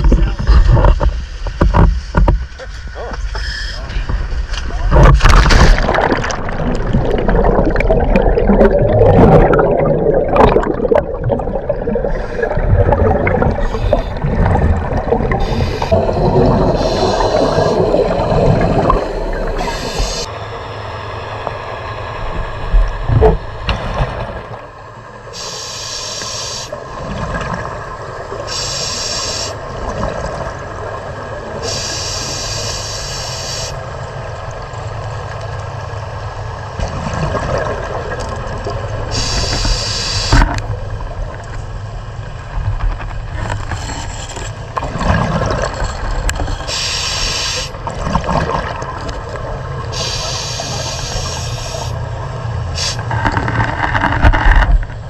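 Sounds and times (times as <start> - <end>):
boat engine running: 0.0 - 26.9
short hisses: 15.4 - 20.3, 39.1 - 40.4, 46.6 - 47.8, 50.0 - 52.0, 52.8 - 53.1.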